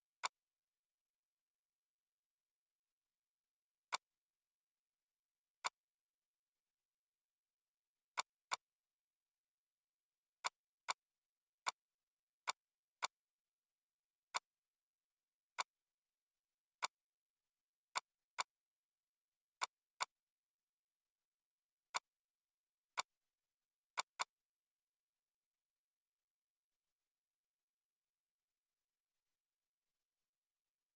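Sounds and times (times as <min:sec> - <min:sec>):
computer mouse clicks: 0:00.1 - 0:00.5, 0:08.2 - 0:08.7, 0:12.5 - 0:13.2, 0:17.9 - 0:18.6, 0:19.6 - 0:20.2, 0:24.0 - 0:24.4.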